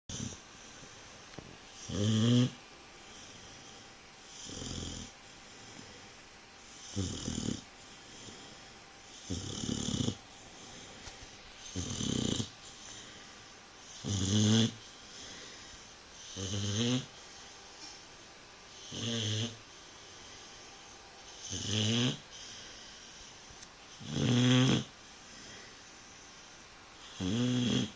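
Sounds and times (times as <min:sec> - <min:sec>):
dog snoring loudly: 0:00.1 - 0:01.1, 0:01.7 - 0:06.1, 0:06.7 - 0:11.0, 0:11.6 - 0:17.2, 0:18.7 - 0:19.6, 0:21.3 - 0:23.3, 0:23.9 - 0:25.7, 0:27.0 - 0:27.9.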